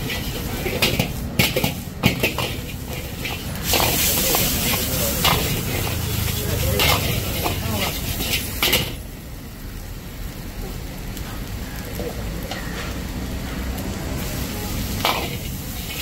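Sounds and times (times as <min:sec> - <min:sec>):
steel ladle scraping pan: 0:00.0 - 0:09.0
onions sizzling in a wok: 0:00.0 - 0:16.0.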